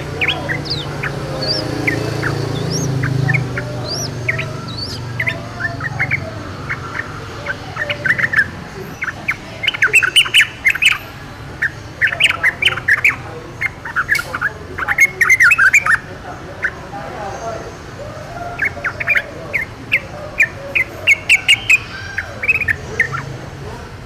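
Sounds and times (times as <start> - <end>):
bird whistled notes: 0.0 - 11.0
bird chattering: 0.0 - 24.0.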